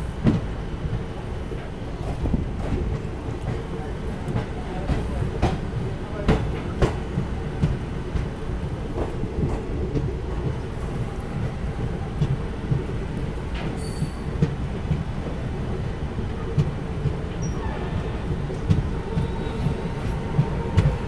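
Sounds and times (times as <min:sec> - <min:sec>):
rail joint clicks: 0:00.0 - 0:21.0
train wheels rumbling on rails: 0:00.0 - 0:21.0
short high squeak: 0:13.8 - 0:14.2.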